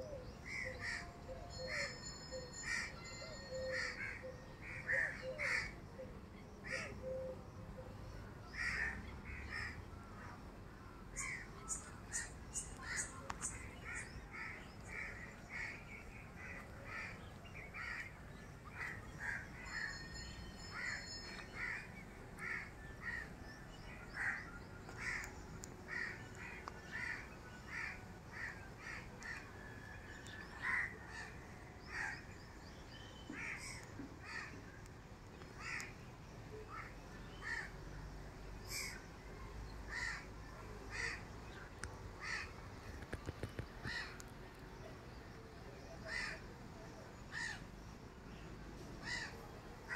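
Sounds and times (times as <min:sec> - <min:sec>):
birds calling: 0:11.2 - 0:37.8.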